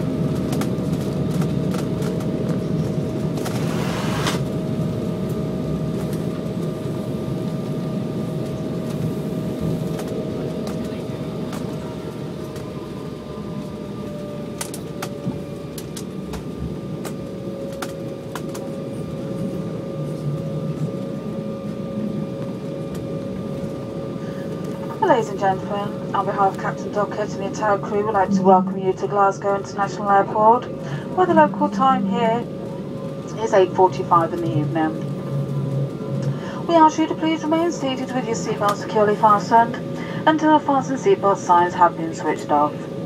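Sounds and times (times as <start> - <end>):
jet engine rumble: 0.0 - 43.0
jet engine whine: 0.0 - 43.0.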